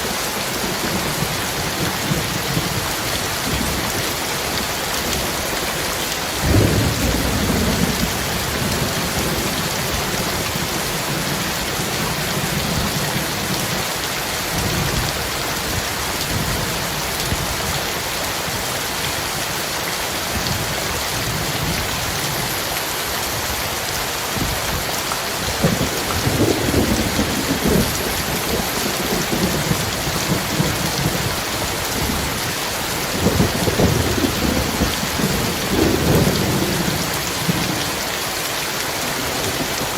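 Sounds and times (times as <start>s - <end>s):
heavy rain pouring: 0.0s - 39.9s
thunder clap: 6.4s - 9.5s
rolling thunder rumbles: 6.4s - 13.7s, 25.4s - 38.0s.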